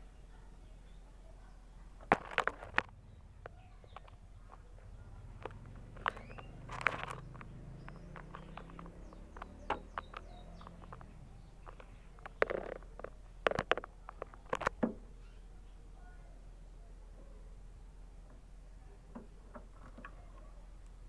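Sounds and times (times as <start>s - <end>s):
canary chirping: 2.9s - 16.2s
sharp taps and clicks: 5.4s - 15.0s.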